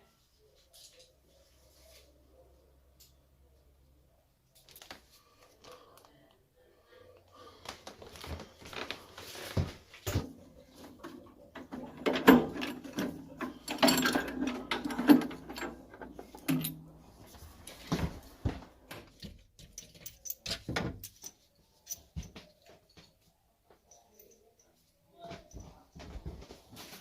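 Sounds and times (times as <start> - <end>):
hand tools clattering on metal: 10.1 - 17.0.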